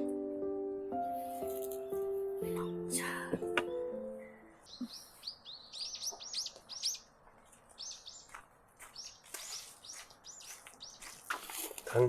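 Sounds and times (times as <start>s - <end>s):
small songbird chirping: 2.5s - 11.6s.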